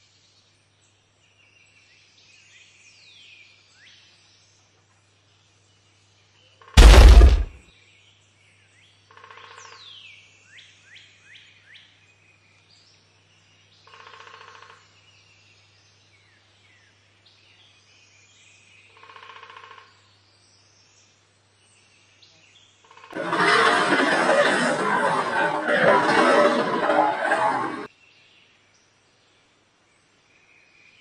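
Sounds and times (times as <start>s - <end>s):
loud harsh sound: 6.8s - 7.6s.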